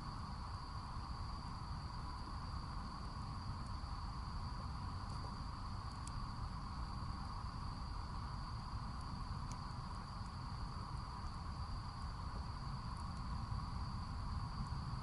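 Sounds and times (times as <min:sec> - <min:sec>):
crickets and insects chirping: 0:00.0 - 0:15.0
campfire wood crackling: 0:03.1 - 0:07.7, 0:08.8 - 0:14.8.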